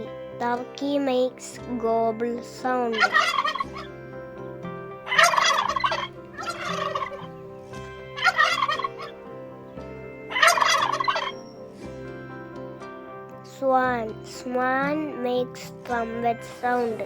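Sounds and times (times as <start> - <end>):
turkey gobbling: 3.0 - 3.9, 5.1 - 7.4, 8.2 - 9.2, 10.3 - 11.5.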